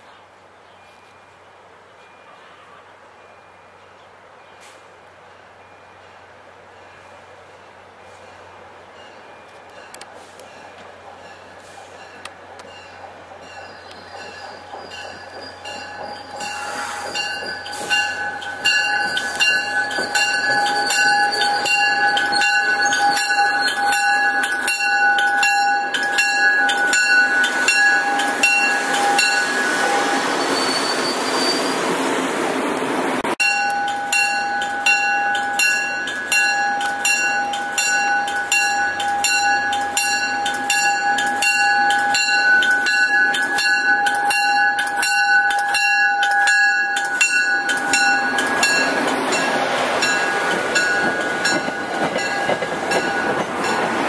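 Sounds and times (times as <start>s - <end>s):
train passing: 1.2s - 54.0s
warning bell ringing: 11.2s - 30.1s, 33.4s - 54.0s.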